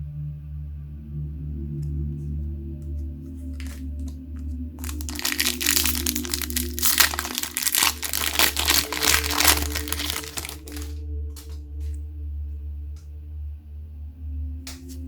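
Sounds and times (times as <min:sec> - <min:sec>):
ambient music drone: 0:00.0 - 0:15.0
packaging crinkling: 0:03.6 - 0:04.1, 0:04.8 - 0:11.0.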